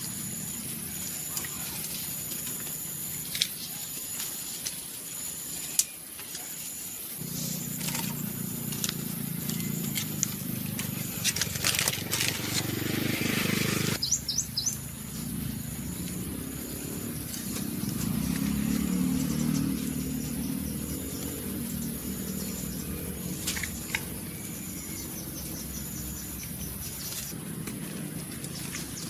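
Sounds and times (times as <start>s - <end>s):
rustling: 1.2s - 12.9s
low steady outdoor rumble: 6.9s - 29.0s
short high bird chirps: 14.0s - 14.8s.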